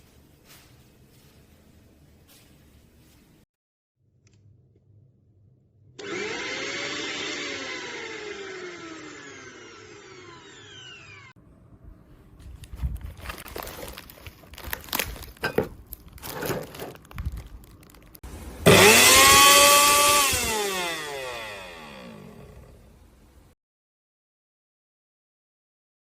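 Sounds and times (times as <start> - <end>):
mixer grinder motor whining: 6.0 - 11.4, 18.6 - 23.0.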